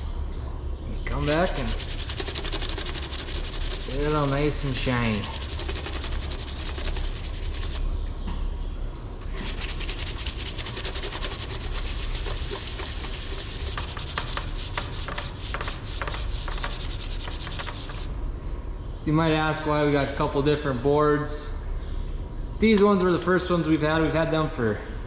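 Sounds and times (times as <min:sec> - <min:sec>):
steady low hum: 0:00.0 - 0:25.0
rubbing strokes scrubbing a panel: 0:01.1 - 0:07.9, 0:09.2 - 0:18.1.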